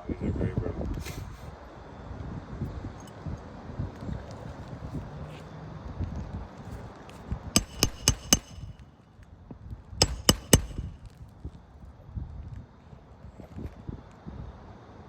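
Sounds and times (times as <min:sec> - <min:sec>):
hammer striking nails: 0:07.6 - 0:08.9, 0:10.0 - 0:11.2.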